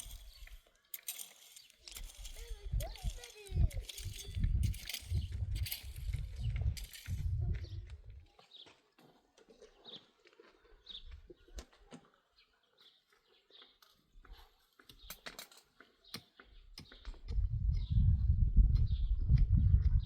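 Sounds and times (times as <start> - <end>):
small bird chirping: 0.0 - 8.7.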